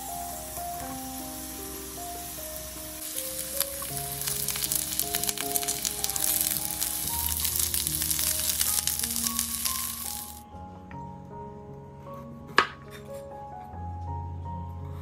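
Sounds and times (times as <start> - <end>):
potatoes sizzling in hot oil: 0.0 - 10.4
background music: 0.0 - 15.0.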